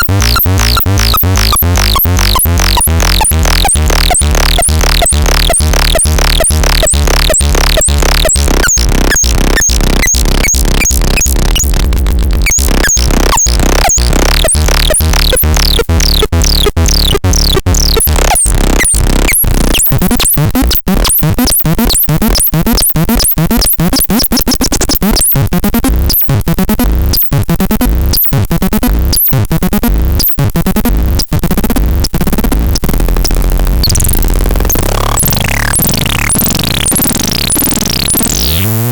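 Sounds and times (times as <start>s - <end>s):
low synthesizer drone: 0.0s - 22.4s
rhythmic synthesizer clicks: 0.0s - 38.9s.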